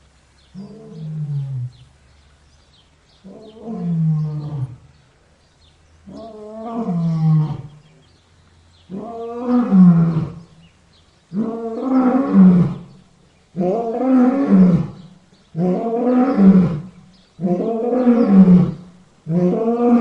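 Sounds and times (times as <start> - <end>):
lion roaring: 3.3 - 4.8, 6.1 - 7.8, 8.9 - 10.5, 15.6 - 20.0.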